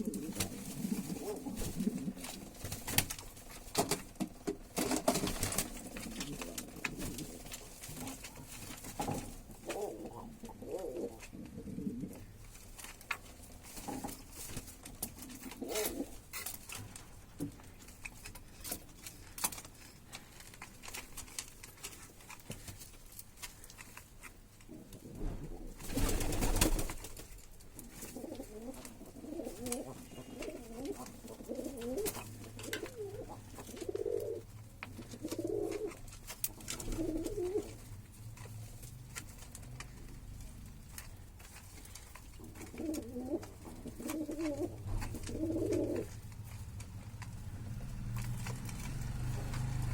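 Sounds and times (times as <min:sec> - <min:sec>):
doves cooing: 0:00.0 - 0:12.4, 0:15.0 - 0:16.4, 0:27.8 - 0:38.2, 0:41.6 - 0:49.9.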